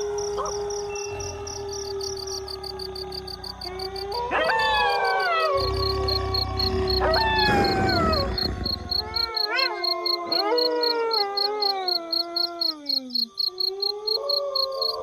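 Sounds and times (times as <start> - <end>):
wolves howling in chorus: 0.0 - 15.0
low rumble: 5.6 - 9.3.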